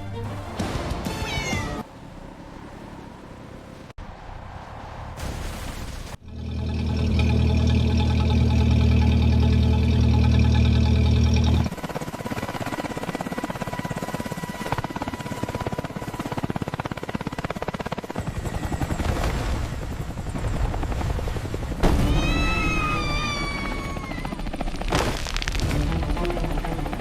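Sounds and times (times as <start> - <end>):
long meow-like cry: 22.0 - 24.5.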